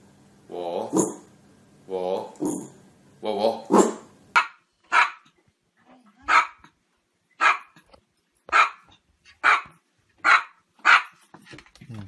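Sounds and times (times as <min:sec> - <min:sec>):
small dog barking: 0:03.7 - 0:05.3, 0:06.2 - 0:06.7, 0:07.4 - 0:07.8, 0:08.5 - 0:11.2.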